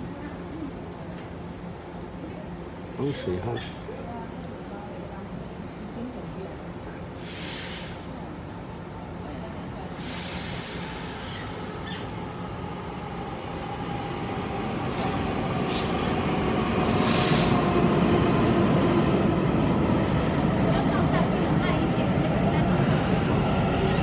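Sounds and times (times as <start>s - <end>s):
train rumble: 4.4s - 24.0s
air hissing: 7.2s - 8.1s, 10.0s - 12.1s, 16.8s - 17.8s.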